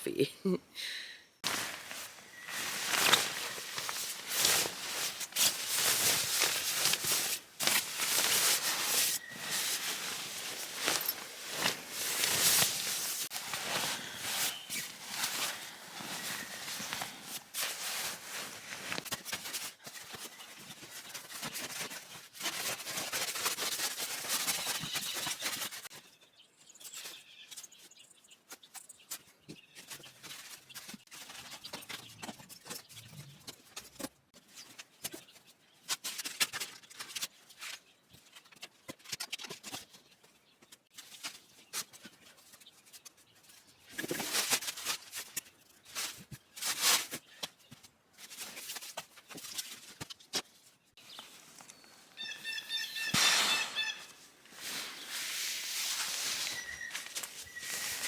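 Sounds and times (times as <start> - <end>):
camping gear rustling and clattering: 1.4 - 26.1, 28.4 - 52.3, 53.1 - 58.0.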